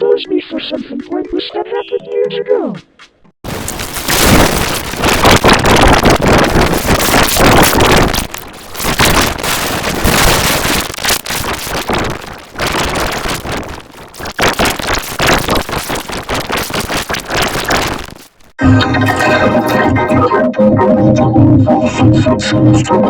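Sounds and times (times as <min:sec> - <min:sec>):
harsh distorted crackling noise: 0:03.4 - 0:20.3.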